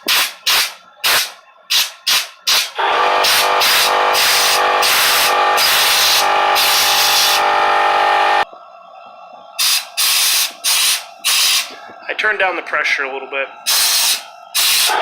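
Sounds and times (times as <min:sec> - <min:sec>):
compressed air hissing from nozzle: 0:00.0 - 0:07.4, 0:09.6 - 0:11.8, 0:13.6 - 0:15.0
short air blasts: 0:00.0 - 0:08.4, 0:09.6 - 0:11.9, 0:13.6 - 0:15.0
air compressor whining: 0:00.0 - 0:08.5, 0:09.6 - 0:12.1, 0:13.6 - 0:15.0.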